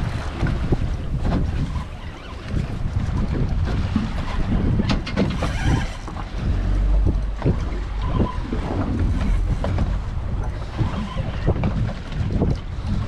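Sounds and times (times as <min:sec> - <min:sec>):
water slapping against hull: 0:00.0 - 0:13.0
wind buffeting microphone: 0:00.0 - 0:13.0
low rumble: 0:05.8 - 0:13.0.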